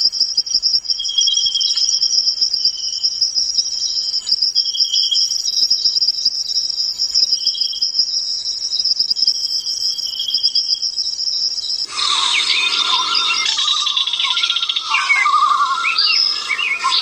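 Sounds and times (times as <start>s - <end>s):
crickets trilling: 11.8s - 17.0s
lower insect trill: 11.8s - 17.0s.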